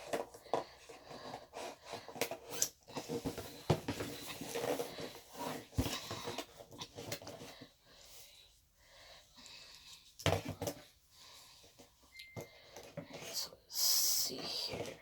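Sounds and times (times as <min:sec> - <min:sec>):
cardboard box rustling and scraping: 0:00.9 - 0:07.4.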